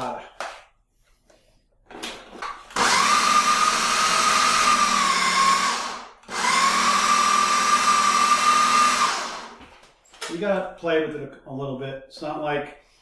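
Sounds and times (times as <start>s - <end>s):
blender motor whining: 2.7s - 9.6s.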